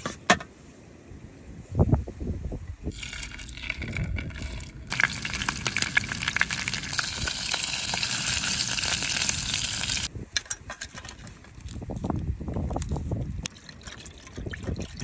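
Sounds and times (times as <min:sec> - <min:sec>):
fish sizzling in frying pan: 0:02.9 - 0:10.1.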